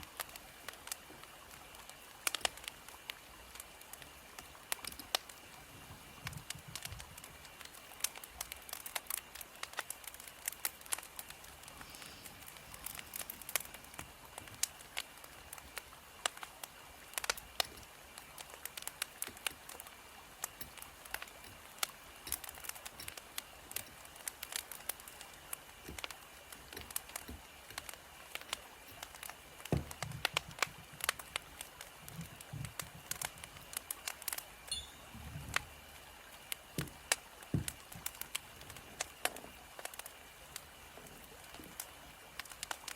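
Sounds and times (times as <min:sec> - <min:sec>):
steady low hiss: 0:00.0 - 0:42.9
wood fire crackling: 0:00.0 - 0:42.9.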